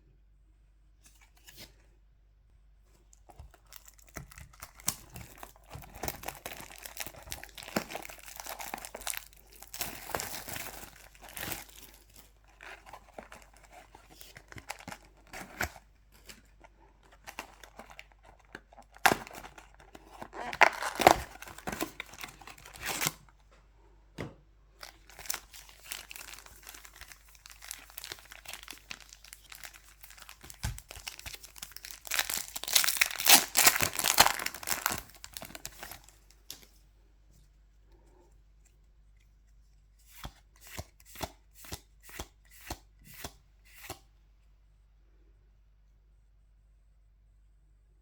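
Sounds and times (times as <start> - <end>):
foil wrappers tearing and crinkling: 3.6 - 16.4, 17.2 - 23.2, 24.8 - 36.1.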